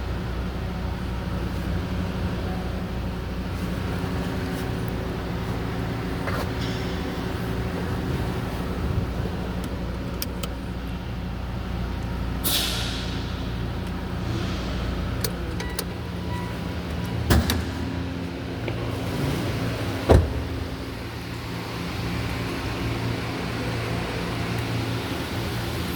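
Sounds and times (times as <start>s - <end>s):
car engine idling: 0.0s - 25.9s
short hiss: 12.4s - 13.1s.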